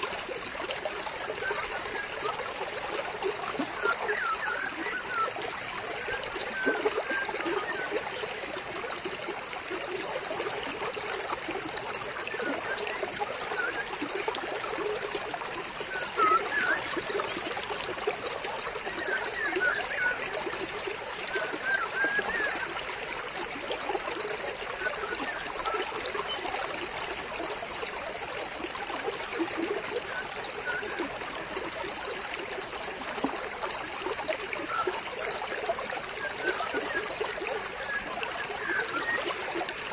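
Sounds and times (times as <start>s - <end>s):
stream water trickling: 0.0s - 39.9s
bird chirps: 15.9s - 17.3s.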